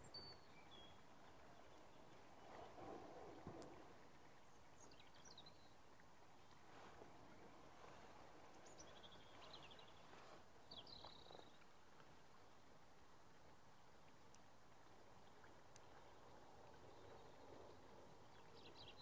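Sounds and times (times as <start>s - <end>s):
soft rustle: 6.2s - 12.5s.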